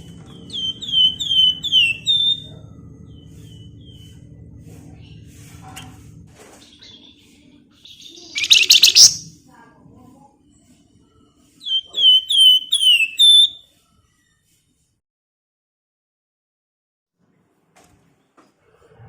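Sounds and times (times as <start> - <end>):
bird chattering trill: 0.4 - 2.5, 7.8 - 9.3, 11.6 - 13.6
bird whistled notes sliding down: 8.4 - 9.2, 11.7 - 13.6.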